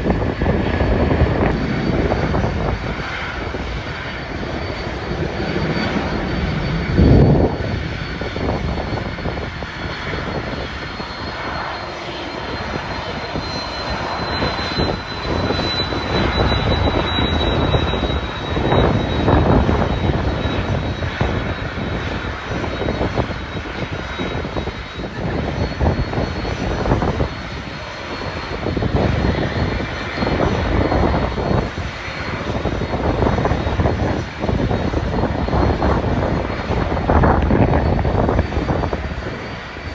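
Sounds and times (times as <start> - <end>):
jet engines running: 0.0 - 39.9
wind buffeting microphone: 0.0 - 39.9
high whine falling in pitch: 1.3 - 21.9.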